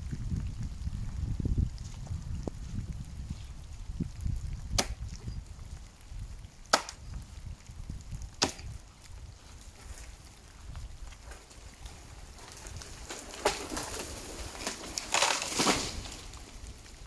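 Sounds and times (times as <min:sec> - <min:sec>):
axe chopping into tree trunk: 0:04.7 - 0:05.2, 0:06.7 - 0:07.0, 0:08.4 - 0:08.8.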